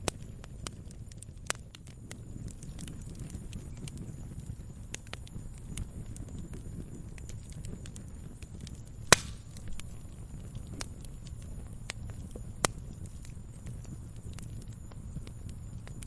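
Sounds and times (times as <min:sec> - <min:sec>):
campfire crackling: 0:00.0 - 0:16.0
sharp loud fire pop: 0:09.1 - 0:09.5.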